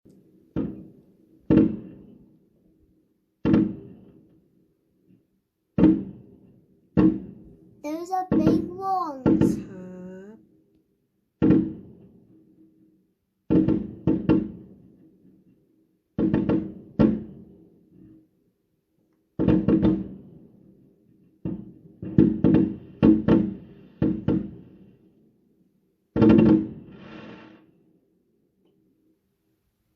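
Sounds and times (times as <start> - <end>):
fireworks bangs: 7.9 - 10.1.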